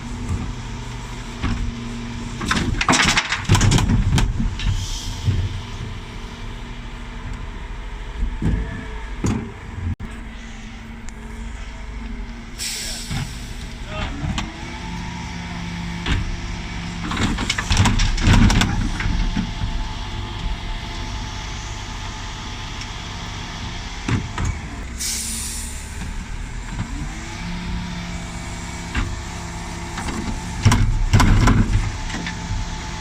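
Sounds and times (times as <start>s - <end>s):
diesel truck engine running: 0.0s - 33.0s
wheelie bins banging and clattering: 0.1s - 33.0s
air hiss: 10.3s - 13.8s, 25.0s - 26.0s.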